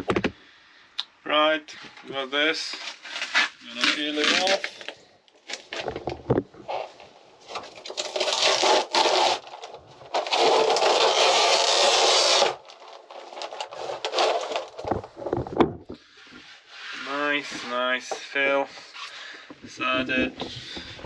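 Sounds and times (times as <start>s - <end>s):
peel ply tearing: 2.8s - 4.9s, 7.5s - 15.0s.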